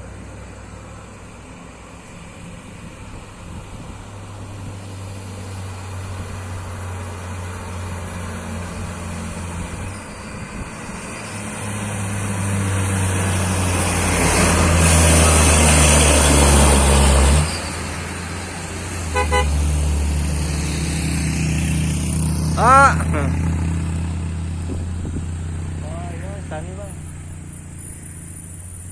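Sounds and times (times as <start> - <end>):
truck diesel engine labouring: 0.0 - 28.9
short horn toots: 19.1 - 19.6.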